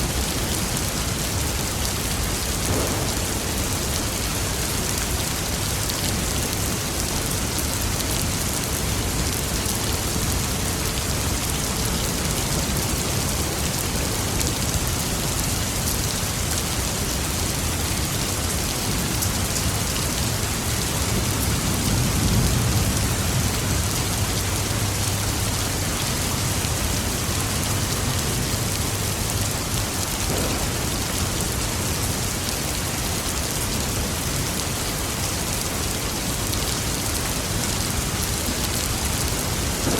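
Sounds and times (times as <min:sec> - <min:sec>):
heavy rain pattering: 0:00.0 - 0:39.9
distant thunder rolling: 0:02.6 - 0:04.4, 0:30.3 - 0:31.6, 0:39.6 - 0:39.9.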